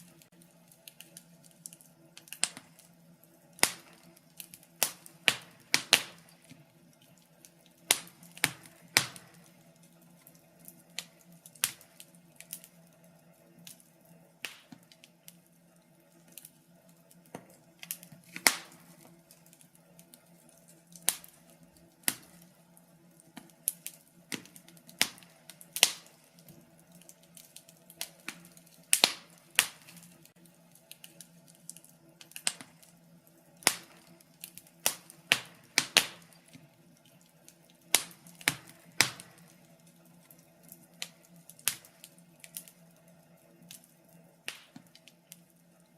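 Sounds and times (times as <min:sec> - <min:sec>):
wood fire crackling: 0:00.0 - 0:45.9.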